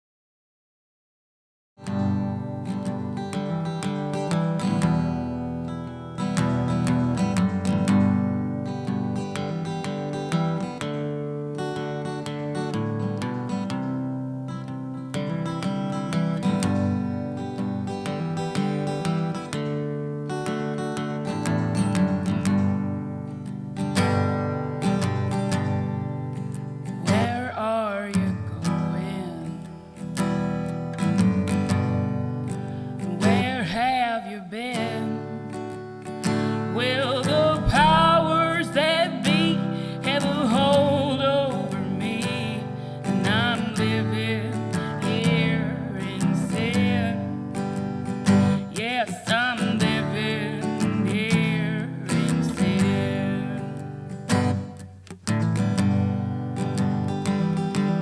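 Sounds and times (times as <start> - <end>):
acoustic guitar strumming chords: 1.8 - 58.0
woman singing: 26.9 - 30.4, 32.5 - 54.7.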